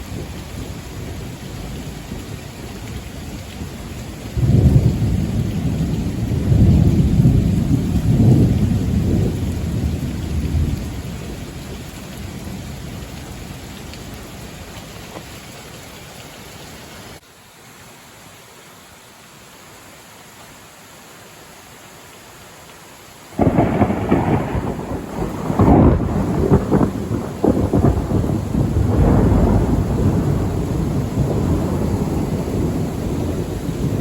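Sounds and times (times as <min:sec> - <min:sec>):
thunder rumbling: 0:00.0 - 0:13.4, 0:23.3 - 0:34.0
steady rain: 0:00.0 - 0:34.0.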